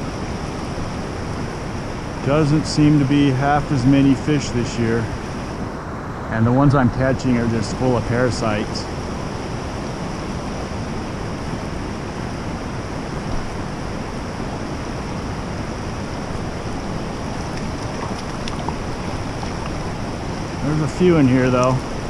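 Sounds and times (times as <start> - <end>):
fast-flowing stream water: 10.7 - 22.0.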